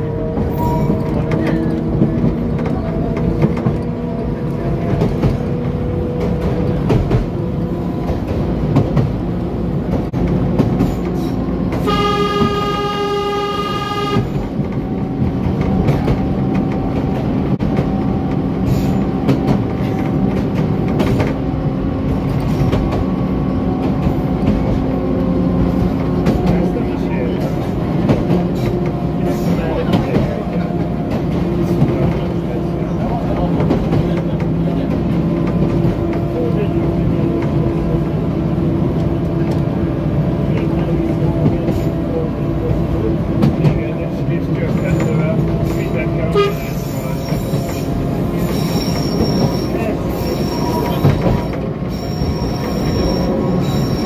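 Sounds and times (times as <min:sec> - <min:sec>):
train engine running: 0:00.0 - 0:54.0
train horn: 0:11.7 - 0:14.4, 0:46.2 - 0:47.0.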